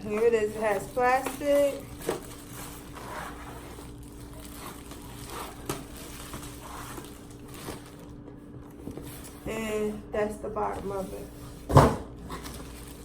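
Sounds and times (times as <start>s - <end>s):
plastic wrapping crinkling: 0.0s - 9.4s, 12.3s - 13.0s.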